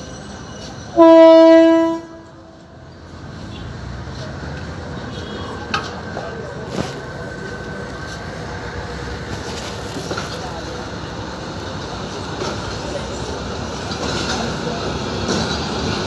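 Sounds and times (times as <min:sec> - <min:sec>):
train horn blast: 0:01.0 - 0:02.7.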